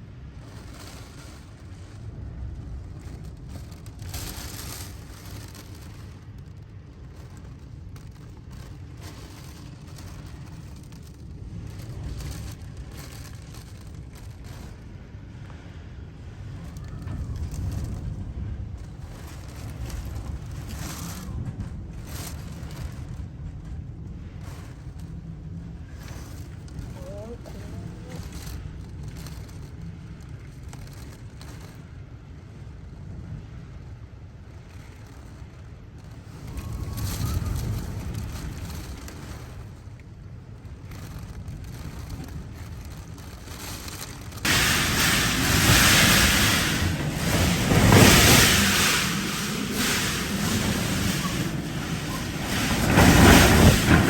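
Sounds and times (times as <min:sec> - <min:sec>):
strong wind buffeting microphone: 0:00.0 - 0:54.0
wind gusting: 0:34.4 - 0:54.0.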